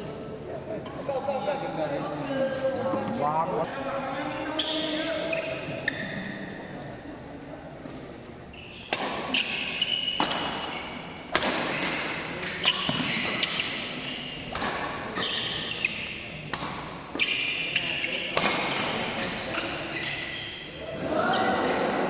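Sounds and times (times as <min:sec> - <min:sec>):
shoes squeaking on court floor: 0:01.4 - 0:03.7, 0:04.4 - 0:06.7, 0:08.4 - 0:11.1, 0:11.7 - 0:21.8
racket striking shuttlecock: 0:08.9 - 0:15.3, 0:16.5 - 0:17.3.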